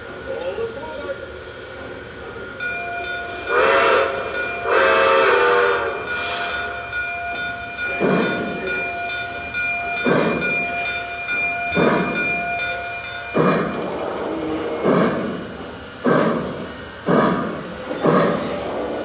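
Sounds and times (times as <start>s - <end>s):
slow steam chuffs: 0.0s - 19.0s
steam whistle blasts: 3.0s - 6.8s.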